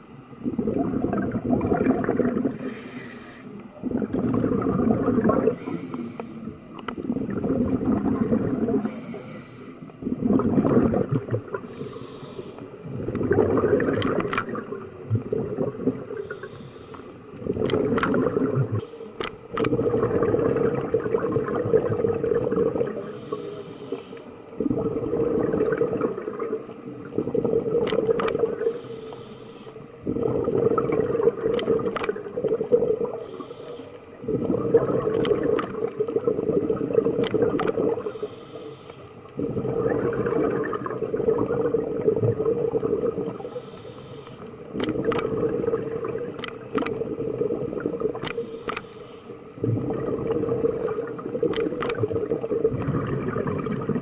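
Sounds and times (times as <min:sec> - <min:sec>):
bubbling exhale: 0:00.4 - 0:54.0
diver breathing through a regulator: 0:02.1 - 0:03.6, 0:04.2 - 0:06.6, 0:08.6 - 0:12.8, 0:16.1 - 0:20.6, 0:22.9 - 0:25.4, 0:28.4 - 0:30.8, 0:33.1 - 0:35.0, 0:37.8 - 0:39.9, 0:43.2 - 0:44.9, 0:48.2 - 0:51.0.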